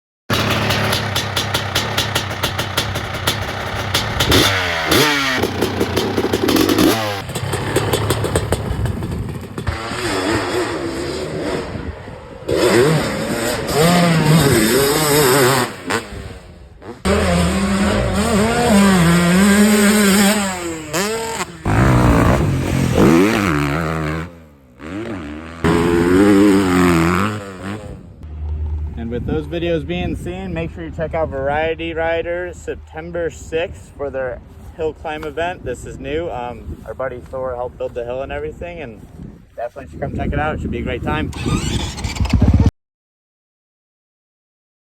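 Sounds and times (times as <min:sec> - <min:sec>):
dirt bike engine revving: 0:00.3 - 0:28.2, 0:41.2 - 0:42.7.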